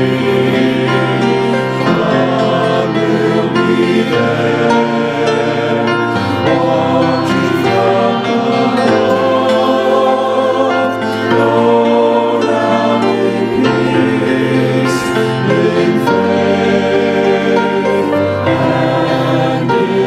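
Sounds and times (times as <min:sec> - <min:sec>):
choir singing a hymn: 0:00.0 - 0:20.0.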